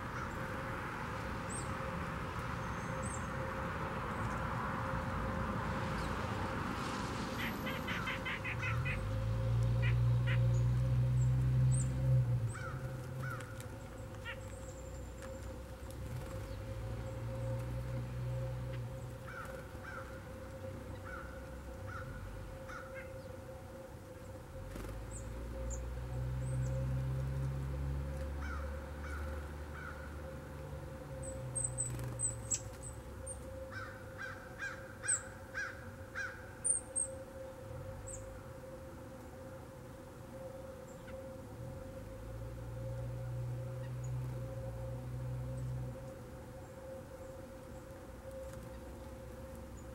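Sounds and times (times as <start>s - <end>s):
birds calling: 7.4s - 9.2s, 9.8s - 15.4s, 28.3s - 30.1s
small birds chirping: 31.2s - 37.1s.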